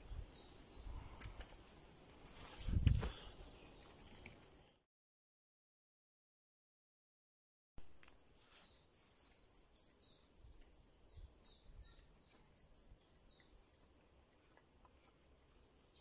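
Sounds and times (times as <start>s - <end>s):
faint bird song: 0.0s - 1.7s, 2.4s - 4.8s, 7.8s - 16.0s.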